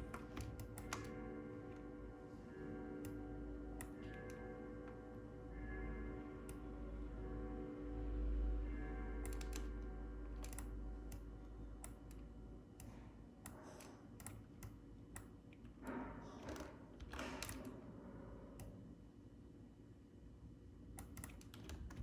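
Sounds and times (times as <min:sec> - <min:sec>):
computer keyboard keys tapping: 0:00.0 - 0:01.9, 0:03.0 - 0:05.0, 0:09.2 - 0:15.8, 0:17.0 - 0:17.8, 0:21.0 - 0:22.0
soft background music: 0:00.0 - 0:19.7.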